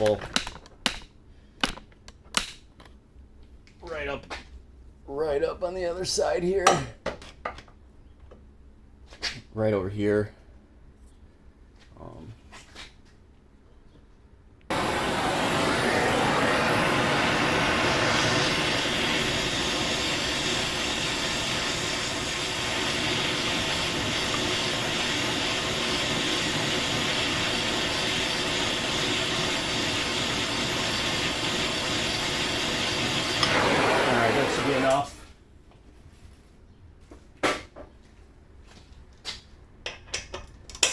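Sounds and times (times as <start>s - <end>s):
gas torch flame roaring hiss: 14.7s - 35.3s.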